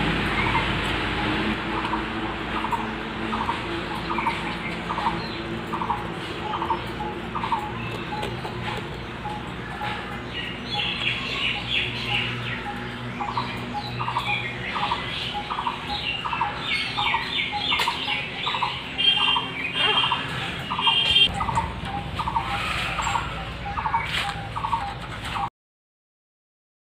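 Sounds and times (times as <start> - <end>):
birds chirping and calling: 0.0 - 25.5.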